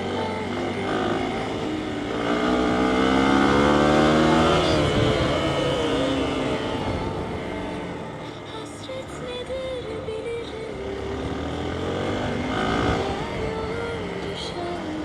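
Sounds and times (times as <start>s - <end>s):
motorcycle engine revving: 0.0s - 15.0s
road noise: 0.0s - 15.0s
wind: 0.0s - 15.0s.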